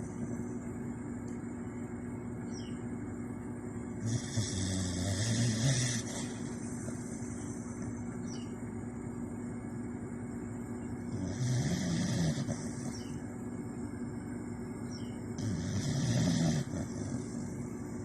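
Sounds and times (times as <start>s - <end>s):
dog snoring: 4.0s - 7.6s, 11.1s - 13.2s, 15.4s - 17.6s
dog breathing: 4.0s - 8.0s.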